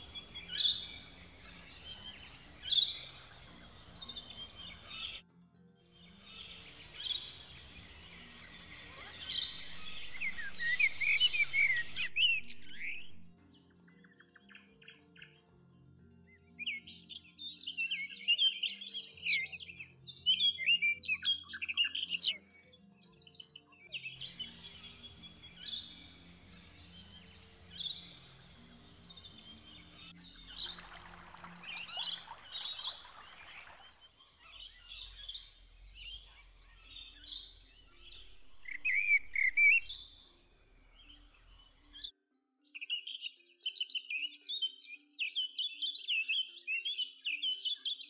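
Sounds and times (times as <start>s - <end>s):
birds chirping and trilling: 0.0s - 5.2s, 6.0s - 15.4s, 23.9s - 42.1s
faint soft music: 0.0s - 48.0s.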